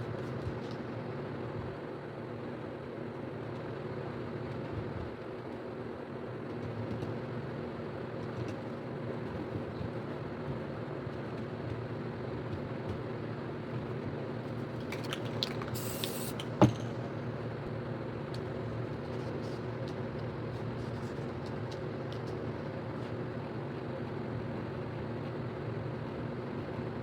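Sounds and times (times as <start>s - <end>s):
low mechanical hum: 0.0s - 27.0s
aerosol spray can hiss: 15.7s - 16.5s.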